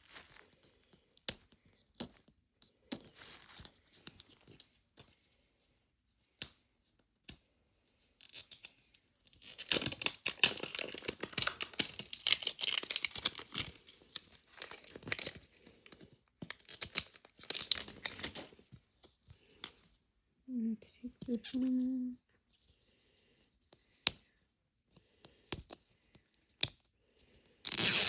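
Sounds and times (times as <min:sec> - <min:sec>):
plastic wrappers tearing and crinkling: 0:09.4 - 0:15.4, 0:16.4 - 0:18.6, 0:27.7 - 0:28.0.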